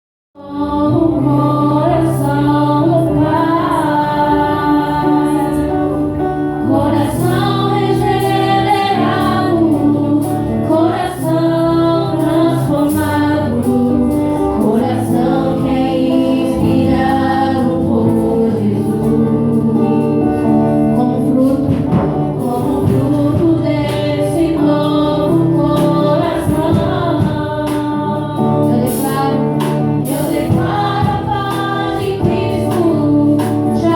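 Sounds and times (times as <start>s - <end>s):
gospel choir singing: 0.4s - 33.9s.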